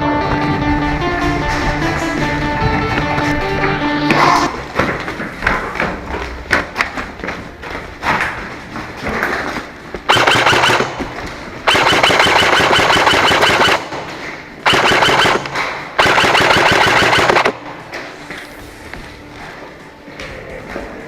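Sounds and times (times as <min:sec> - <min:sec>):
airsoft gun firing bursts: 0:10.1 - 0:17.7.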